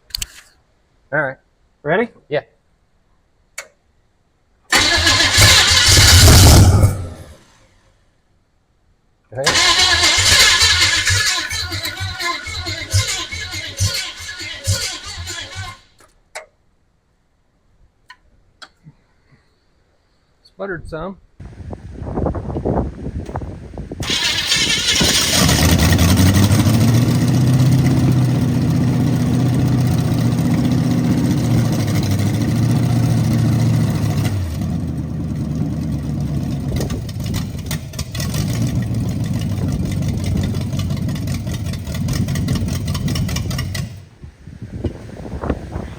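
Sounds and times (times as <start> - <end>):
truck engine starting and running: 4.7 - 7.8, 9.4 - 16.1, 21.4 - 45.9.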